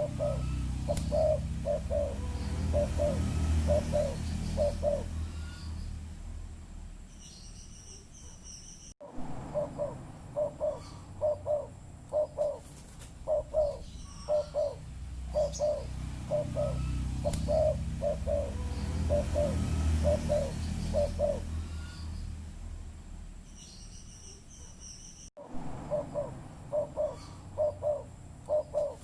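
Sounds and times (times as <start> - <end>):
dove cooing: 0.0 - 5.6, 9.5 - 22.0, 25.9 - 29.0.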